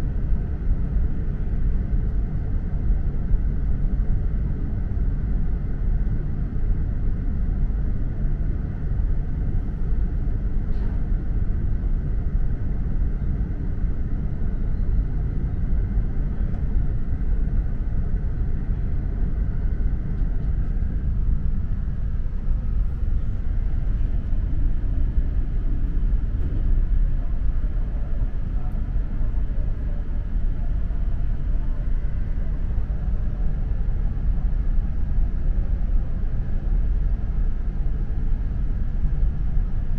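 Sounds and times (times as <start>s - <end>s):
train rumbling along track: 8.7s - 36.7s.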